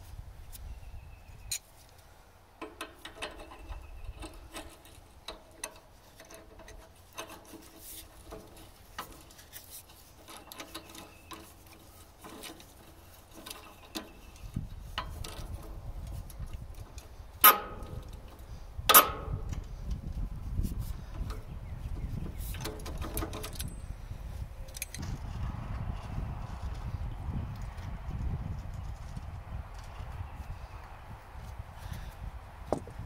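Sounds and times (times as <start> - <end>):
loud metal clanks: 17.4 - 18.3.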